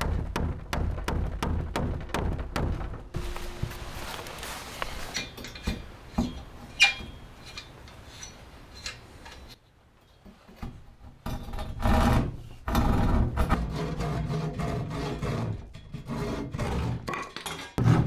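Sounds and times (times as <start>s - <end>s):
rubbing and scraping: 2.1s - 9.6s.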